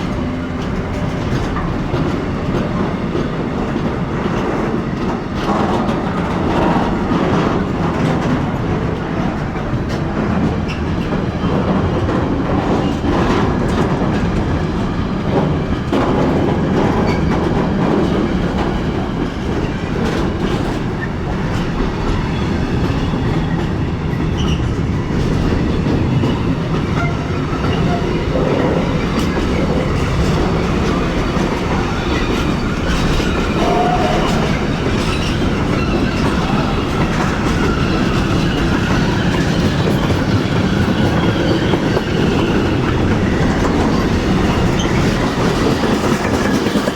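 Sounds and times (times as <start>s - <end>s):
train rumbling: 0.0s - 46.9s
faint squeal: 32.5s - 37.0s.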